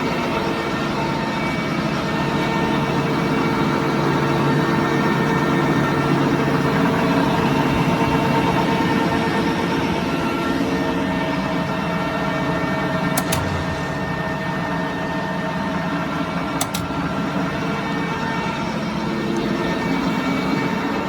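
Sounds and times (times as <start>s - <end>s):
lathe running: 13.2s - 21.0s.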